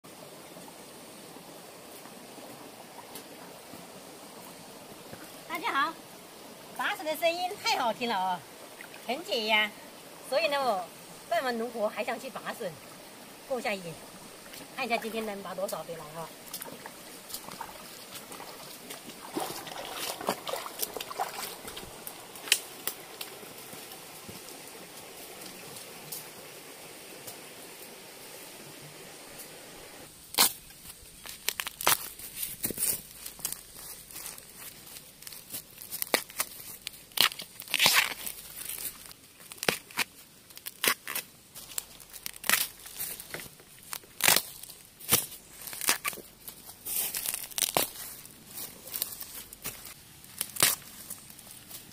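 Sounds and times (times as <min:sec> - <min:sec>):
bamboo rustling and crackling: 0:01.8 - 0:28.5, 0:29.3 - 0:51.9
bamboo snapping: 0:19.3 - 0:23.4, 0:30.3 - 0:48.2, 0:48.8 - 0:51.8.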